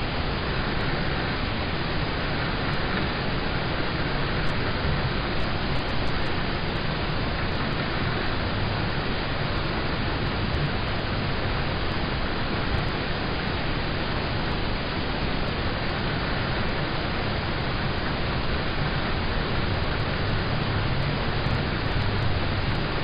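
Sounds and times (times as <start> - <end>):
rain on a car roof: 0.0 - 23.0.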